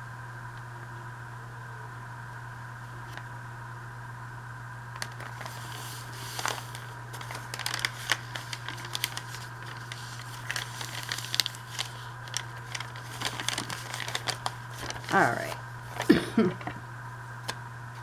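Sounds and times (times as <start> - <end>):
low electrical hum: 0.0 - 18.0
paper crinkling and rustling: 4.9 - 18.0.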